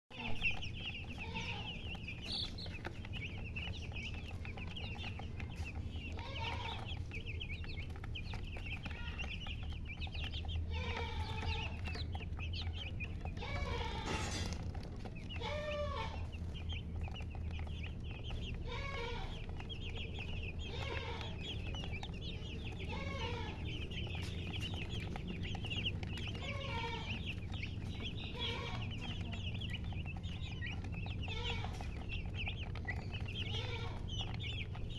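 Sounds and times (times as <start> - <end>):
chicks peeping: 0.1 - 34.9
hen clucking: 0.1 - 34.9.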